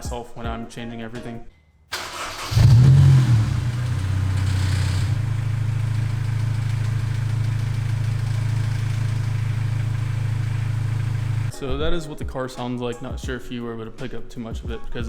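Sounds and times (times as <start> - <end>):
car engine idling: 1.9 - 11.5.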